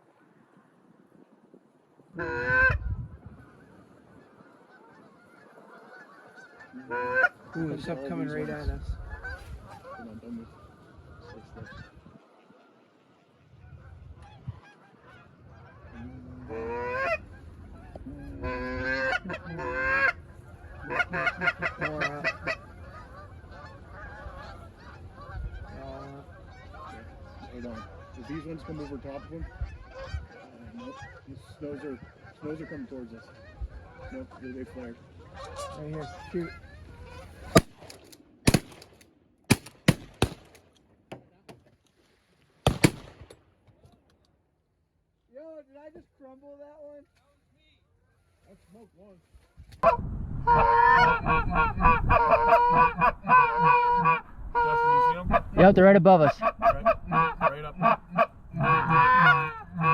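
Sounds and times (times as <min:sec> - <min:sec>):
goose clucking: 0:02.1 - 0:12.7, 0:13.7 - 0:40.5, 0:49.5 - 0:59.9
goose honking: 0:02.1 - 0:13.0, 0:13.6 - 0:37.8, 0:49.4 - 0:59.9
shotgun blasts: 0:37.4 - 0:40.7, 0:42.6 - 0:43.4
faint distant gunshots: 0:37.4 - 0:40.8, 0:42.6 - 0:43.7.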